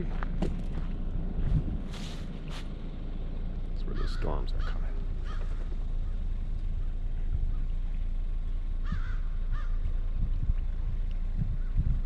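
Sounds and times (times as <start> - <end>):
wind rumble on microphone: 0.0 - 2.5, 6.0 - 12.0
bird calls: 3.8 - 10.1.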